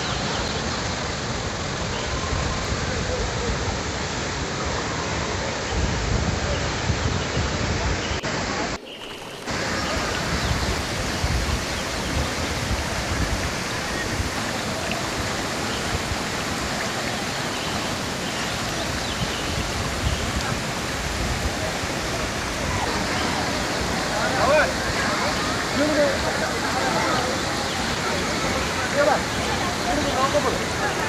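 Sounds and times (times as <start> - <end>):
small waterfall rushing: 0.0 - 31.0.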